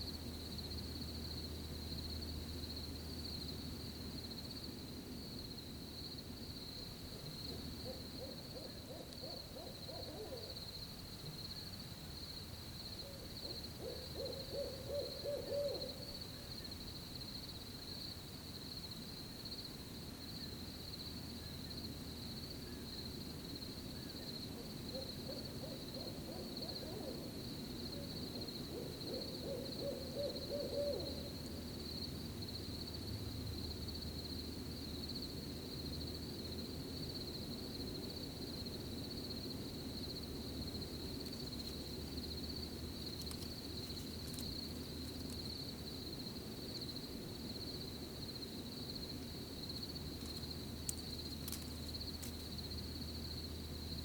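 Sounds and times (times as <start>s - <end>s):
crickets chirping: 0.0s - 54.0s
owl hooting: 7.5s - 10.6s, 13.0s - 16.5s, 24.0s - 27.4s, 28.0s - 31.4s.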